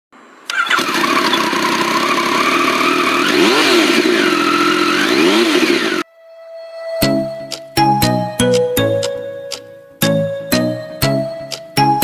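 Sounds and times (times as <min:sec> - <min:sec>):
motorcycle engine revving: 0:00.5 - 0:06.0.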